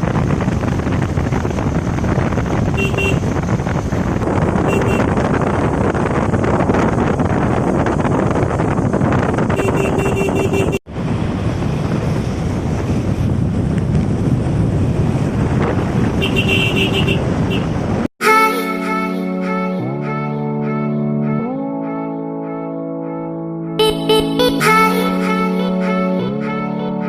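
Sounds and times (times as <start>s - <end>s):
motorcycle road noise: 0.0s - 18.1s
wind rushing over microphone: 0.0s - 18.1s
music: 18.2s - 27.0s.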